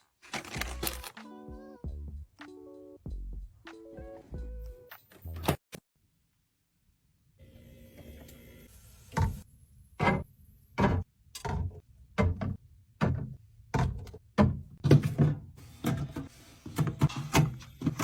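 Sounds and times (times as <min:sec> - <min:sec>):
items clunking onto fridge shelves: 0:10.0 - 0:18.0.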